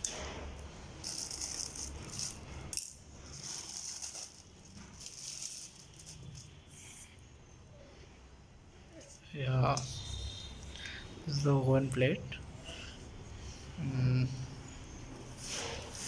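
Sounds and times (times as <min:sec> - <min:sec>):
packaging crinkling: 0:03.3 - 0:06.6.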